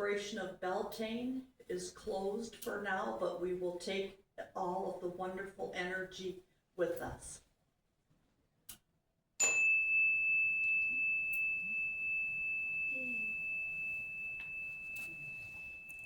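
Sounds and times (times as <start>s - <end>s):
small bell chime ringing: 9.4s - 16.0s.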